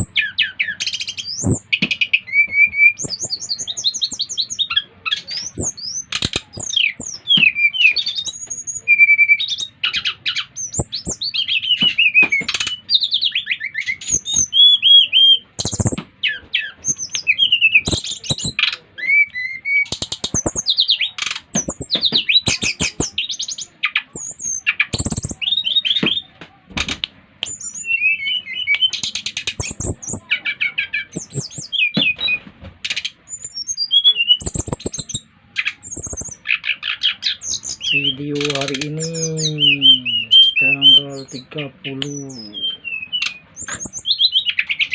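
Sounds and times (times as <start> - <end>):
bird singing whistles and trills: 0.0 - 26.3, 27.4 - 44.9
bird clicking chatter: 5.3 - 8.5, 15.6 - 16.0, 17.0 - 26.2, 26.8 - 30.4, 31.0 - 31.8, 34.4 - 37.0.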